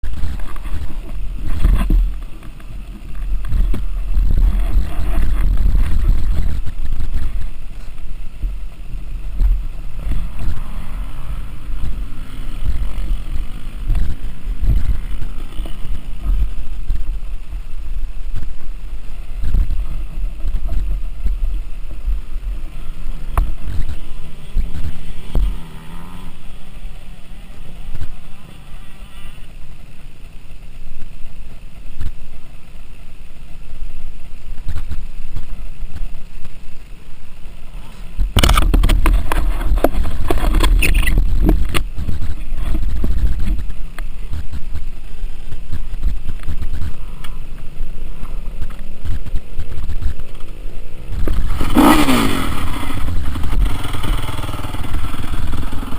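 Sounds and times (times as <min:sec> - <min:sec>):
motocross bike engines revving: 0:00.0 - 0:55.9
wind rumble on microphone: 0:00.0 - 0:55.9.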